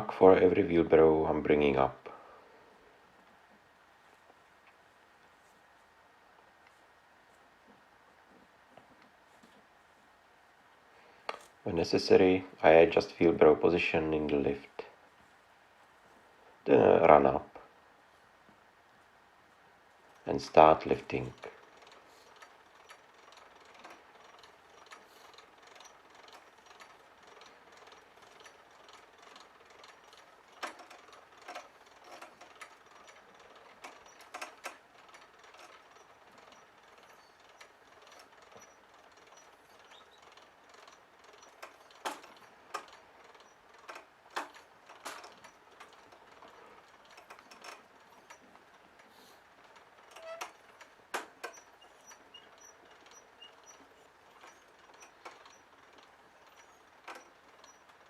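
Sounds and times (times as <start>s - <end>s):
hoist mechanical ticking: 20.2s - 58.0s.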